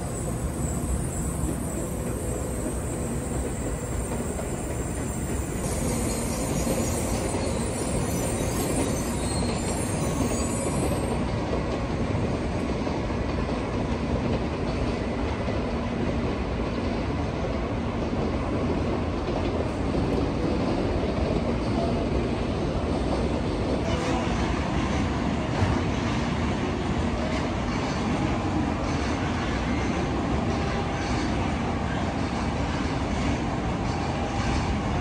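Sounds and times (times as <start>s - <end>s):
high wheel squeal: 0.0s - 11.2s
train wheels rumbling on rail: 0.0s - 35.0s.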